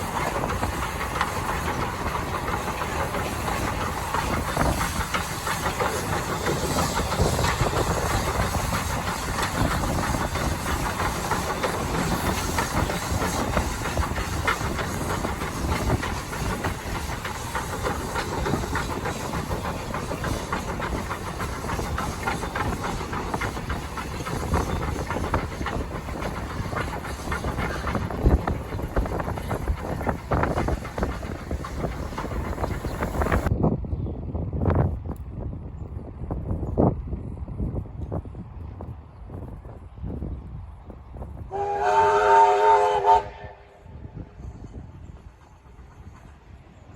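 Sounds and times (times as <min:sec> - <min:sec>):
steam hissing: 0:00.0 - 0:33.5
train rattling on rails: 0:00.0 - 0:46.9
wind buffeting microphone: 0:00.0 - 0:46.9.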